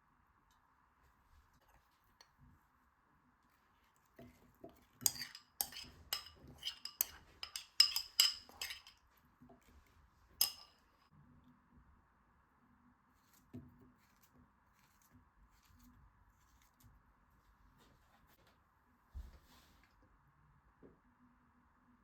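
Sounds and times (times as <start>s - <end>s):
cutlery clinking against dishes: 5.0s - 9.0s, 10.4s - 10.8s.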